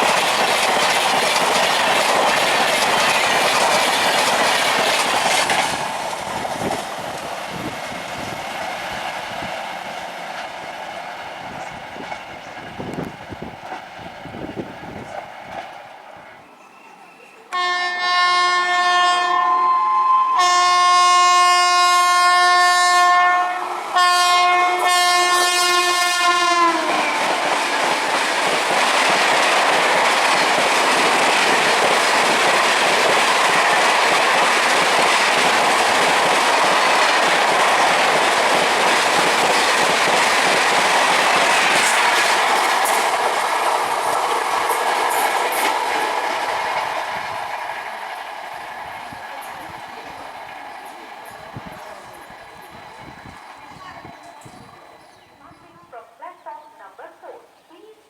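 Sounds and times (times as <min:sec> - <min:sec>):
train running past: 0:00.0 - 0:57.2
train horn blasts: 0:17.5 - 0:27.2.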